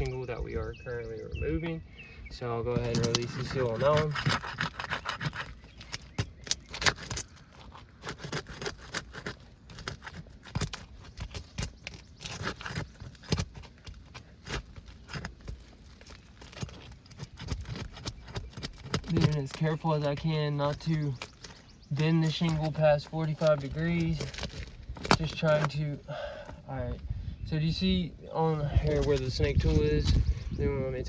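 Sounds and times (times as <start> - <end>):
metal tool scraping shingle: 2.7 - 26.6.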